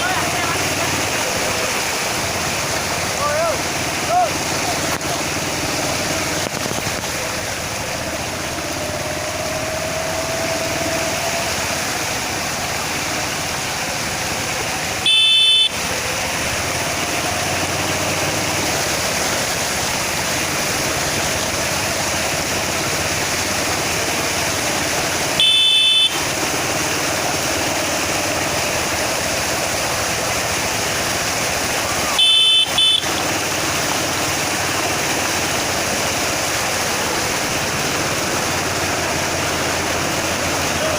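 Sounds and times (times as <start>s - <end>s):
floodwater rushing: 0.0s - 40.9s
vehicle horn toots: 15.0s - 15.9s, 25.4s - 26.3s, 32.1s - 33.3s.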